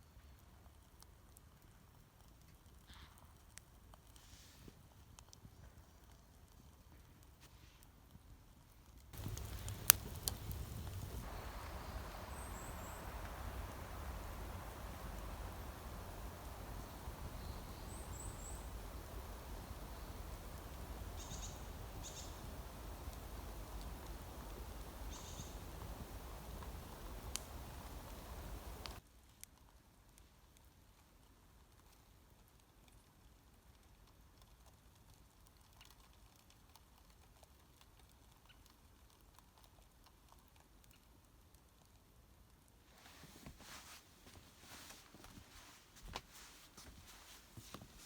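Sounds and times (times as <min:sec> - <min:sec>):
low background hiss: 0:03.4 - 0:34.1, 0:41.3 - 0:48.0
light scattered ticks: 0:08.9 - 0:30.7, 0:31.7 - 0:42.0, 0:42.9 - 0:48.0
songbirds chirping: 0:09.2 - 0:29.0.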